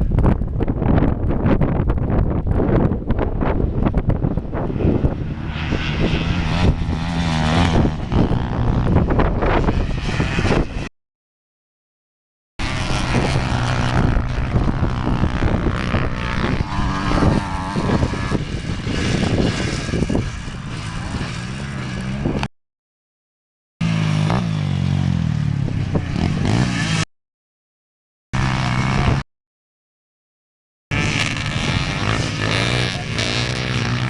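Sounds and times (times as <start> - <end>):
motorcycle engine revving: 2.7 - 10.9, 12.6 - 22.5, 23.8 - 27.1, 28.4 - 29.3, 30.9 - 34.0.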